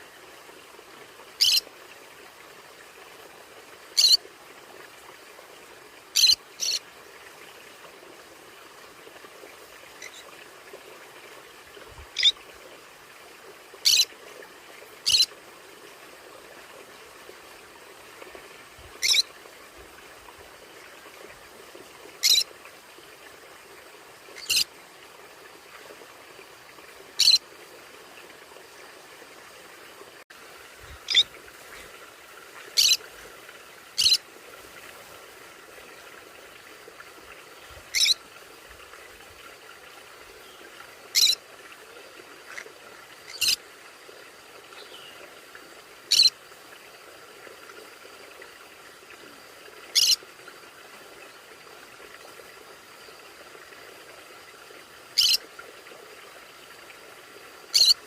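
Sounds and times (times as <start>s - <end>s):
faint steady hiss: 0.0s - 58.0s
parrot squawking: 1.4s - 1.6s, 4.0s - 4.2s, 19.0s - 19.2s, 22.2s - 22.4s, 27.2s - 27.4s, 31.1s - 31.3s, 32.8s - 33.0s, 34.0s - 34.2s, 38.0s - 38.2s, 41.2s - 41.4s, 55.2s - 55.4s, 57.8s - 58.0s.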